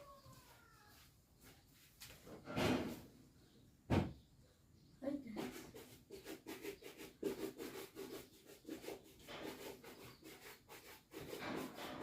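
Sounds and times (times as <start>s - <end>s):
rhythmic brushing strokes: 5.2s - 12.0s.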